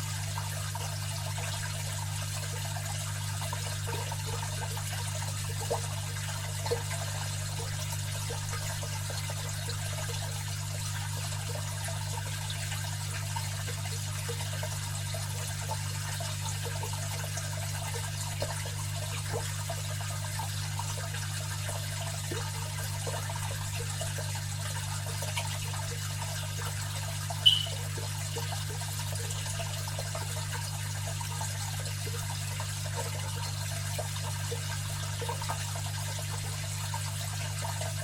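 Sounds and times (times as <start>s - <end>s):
filter hum: 0.0s - 30.0s
water trickling and splashing: 0.0s - 38.0s.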